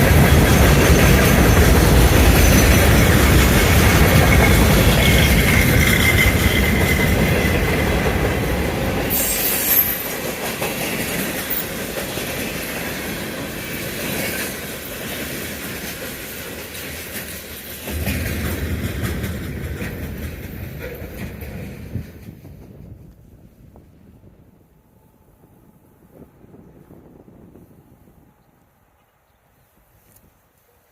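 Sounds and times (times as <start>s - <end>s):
train wheel squeal: 0.0s - 18.7s
freight train cars rolling: 0.0s - 28.0s.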